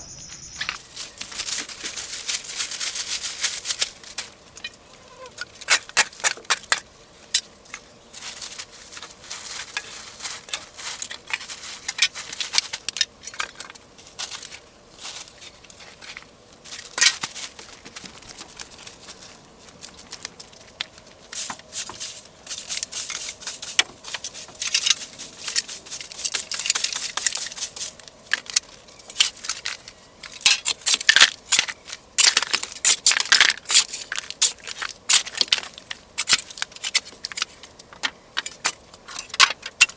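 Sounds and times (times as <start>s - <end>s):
objects being handled and moved: 0.0s - 39.9s.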